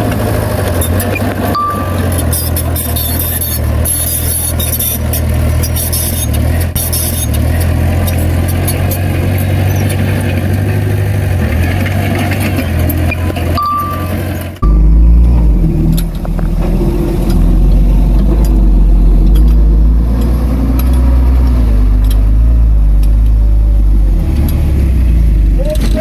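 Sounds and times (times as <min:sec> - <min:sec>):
diesel machinery running: 0:00.0 - 0:26.0
metallic clanks and rattles: 0:00.6 - 0:23.5
short high beeps: 0:01.6 - 0:03.5, 0:13.6 - 0:15.0.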